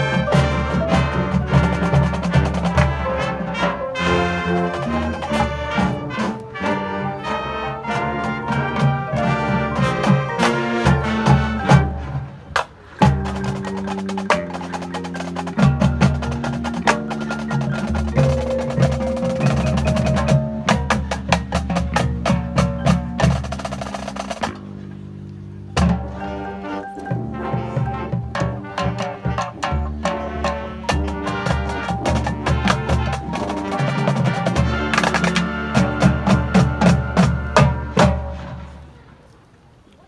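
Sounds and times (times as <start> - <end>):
mallet percussion: 0.0 - 24.9, 25.7 - 38.7
marching band playing: 0.0 - 39.2
snare drum strikes: 30.9 - 38.4.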